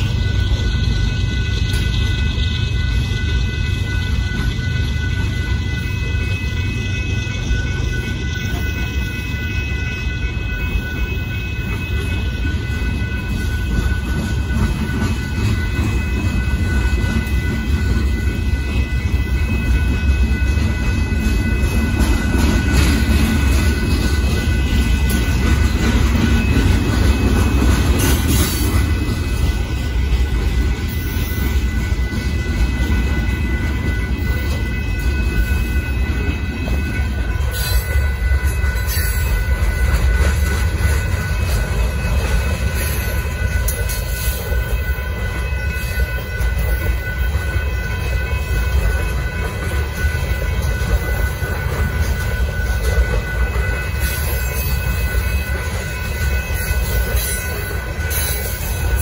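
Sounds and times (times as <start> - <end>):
crossing bell ringing: 0.0 - 59.0
train wheels rumbling on rails: 0.0 - 59.0.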